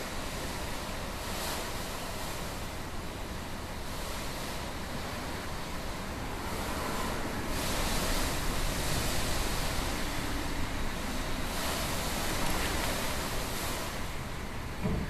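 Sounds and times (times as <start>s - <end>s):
strong wind gusts: 0.0s - 15.0s
wind buffeting microphone: 4.3s - 15.0s.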